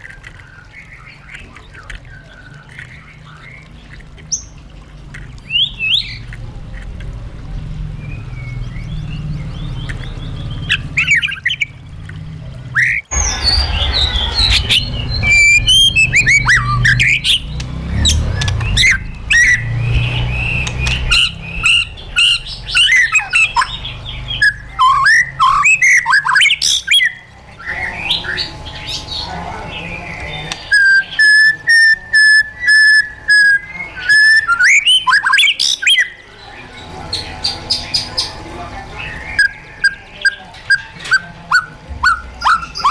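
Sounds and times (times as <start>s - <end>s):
bird singing whistled song: 5.5s - 6.2s, 8.0s - 11.7s, 12.7s - 28.4s, 30.6s - 36.2s
low rumble: 13.1s - 24.5s.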